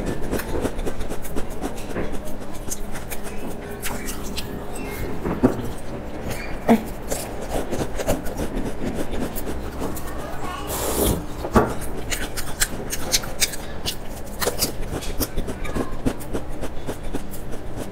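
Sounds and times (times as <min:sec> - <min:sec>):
chewing a crisp biscuit: 0:00.0 - 0:17.9.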